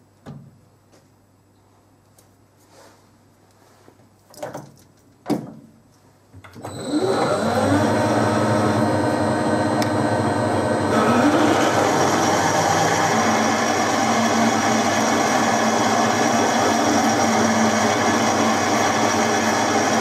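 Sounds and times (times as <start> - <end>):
lathe motor whine: 6.6 - 20.0.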